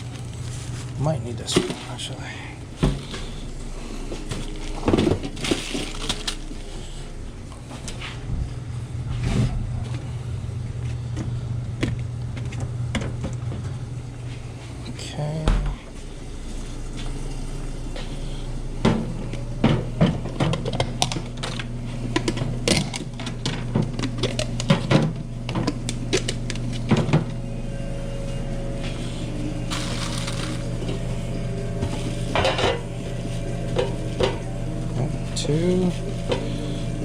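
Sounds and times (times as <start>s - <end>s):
low hum of kitchen equipment: 0.0s - 37.0s
bowls and pans clattering: 31.9s - 32.9s.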